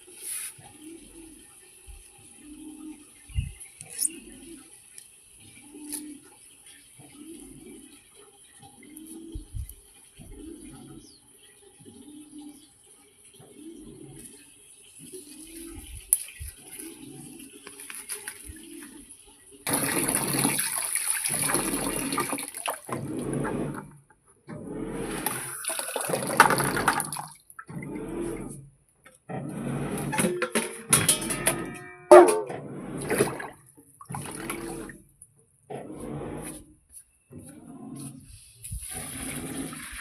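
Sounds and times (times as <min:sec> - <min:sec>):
water running and splashing: 0:15.0 - 0:19.0, 0:19.7 - 0:23.0, 0:25.2 - 0:27.7, 0:38.8 - 0:40.0.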